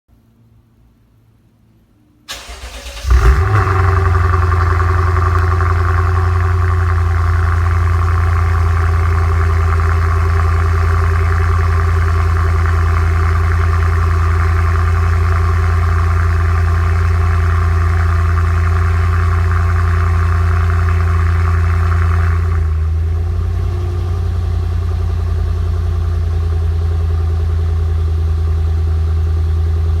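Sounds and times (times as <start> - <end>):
car engine cranking: 2.3 - 22.7
car engine loud fast idle: 2.3 - 30.0.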